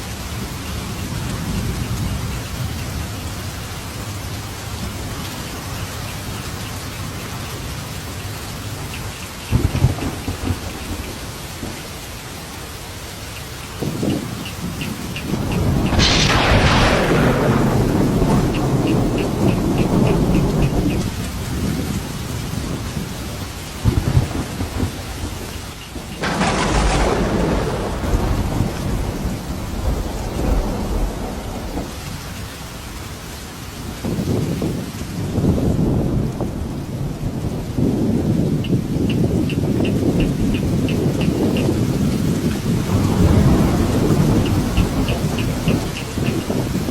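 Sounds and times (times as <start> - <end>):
steady rain: 0.0 - 46.9
crackling thunderclap: 9.4 - 12.2, 13.8 - 32.7, 33.9 - 46.9.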